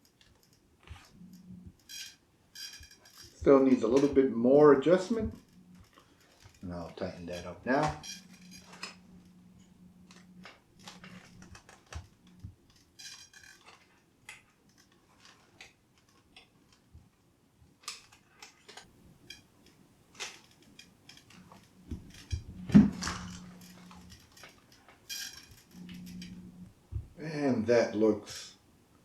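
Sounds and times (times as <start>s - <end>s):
faint low hum: 0.8s - 1.9s, 2.8s - 12.8s, 18.9s - 29.0s.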